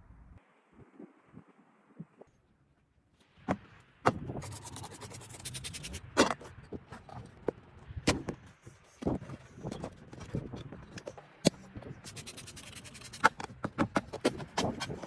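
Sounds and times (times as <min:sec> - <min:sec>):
rasping or scraping: 0:04.1 - 0:15.0.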